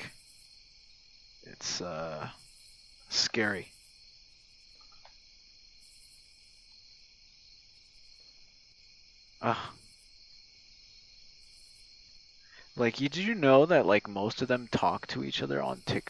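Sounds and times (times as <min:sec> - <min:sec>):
crickets chirping: 0:00.0 - 0:16.0
man saying ah: 0:01.5 - 0:02.3, 0:03.1 - 0:03.6, 0:09.4 - 0:09.7.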